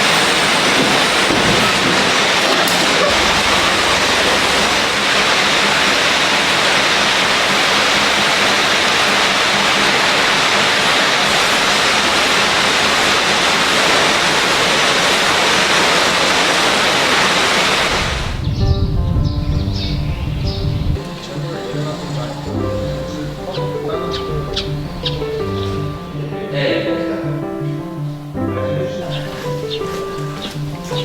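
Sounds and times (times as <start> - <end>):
loud rushing noise: 0.0 - 27.4
music: 18.4 - 31.0.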